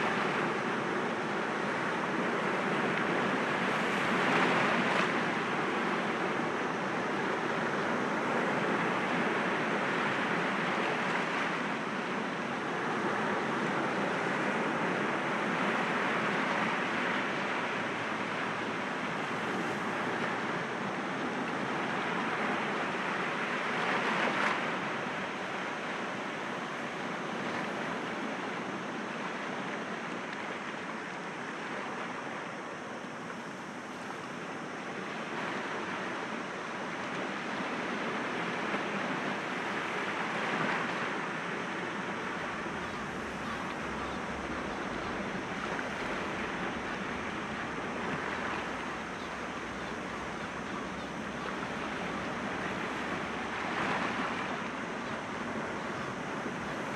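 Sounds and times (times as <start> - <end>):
sea waves breaking against rocks: 37.8 - 56.9.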